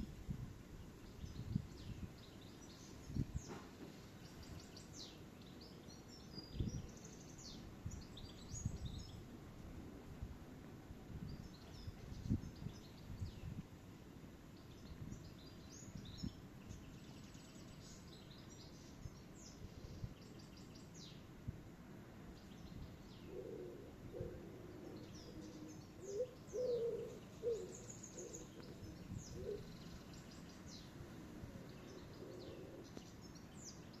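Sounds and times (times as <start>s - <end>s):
birds chirping and trilling: 22.4s - 34.0s
low repeated bird call: 22.8s - 34.0s.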